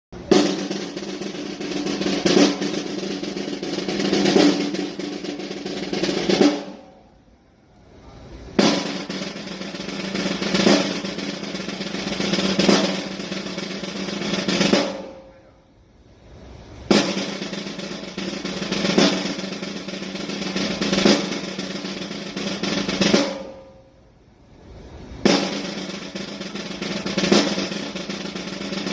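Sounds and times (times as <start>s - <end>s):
snare drum rolls: 0.2s - 7.1s, 8.5s - 15.6s, 16.3s - 28.9s.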